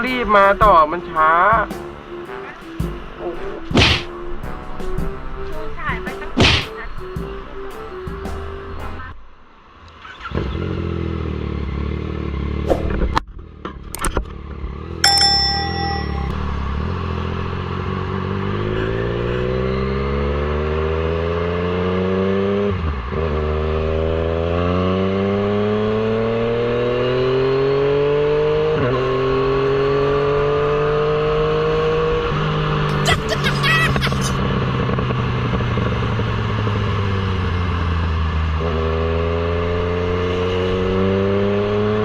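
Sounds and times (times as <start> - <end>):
motorcycle accelerating: 9.8 - 42.0
short ding: 15.0 - 16.7.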